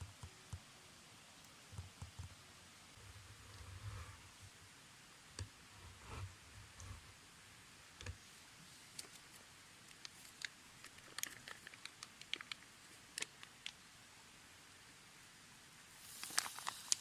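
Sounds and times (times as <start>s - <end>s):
low steady hiss: 0.0s - 17.0s
small clicks and crackles: 8.0s - 13.8s, 16.0s - 17.0s.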